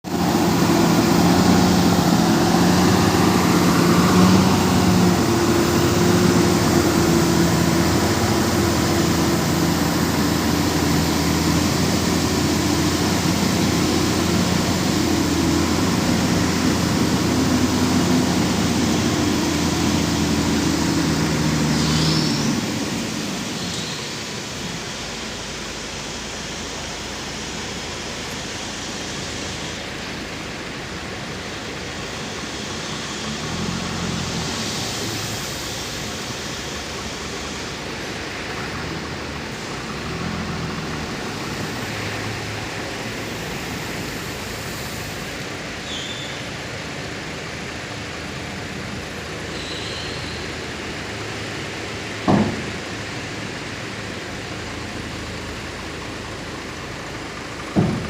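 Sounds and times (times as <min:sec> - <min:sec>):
truck engine hum: 0:00.0 - 0:58.0
sharp knock: 0:52.3 - 0:52.7.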